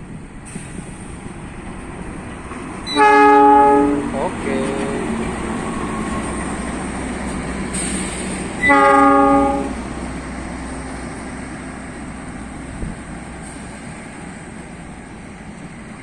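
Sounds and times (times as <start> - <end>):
train rumbling on tracks: 0.0 - 16.0
train horn blast: 2.9 - 5.1, 8.6 - 9.9.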